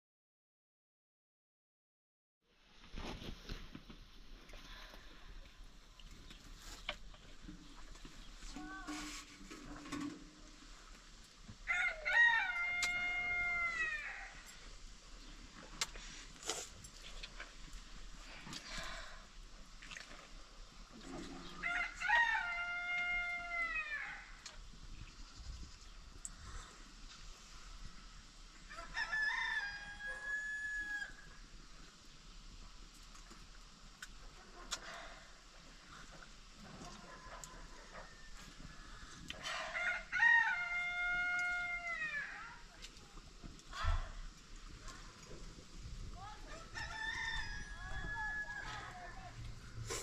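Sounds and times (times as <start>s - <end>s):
rooster crowing: 11.7s - 14.5s, 21.6s - 24.4s, 28.7s - 31.4s, 37.0s - 42.6s, 46.5s - 49.4s.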